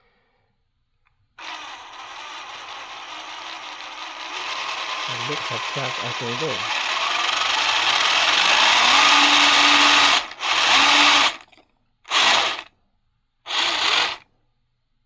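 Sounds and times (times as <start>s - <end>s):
electric motor whining: 1.4s - 11.4s, 12.1s - 12.7s, 13.5s - 14.2s.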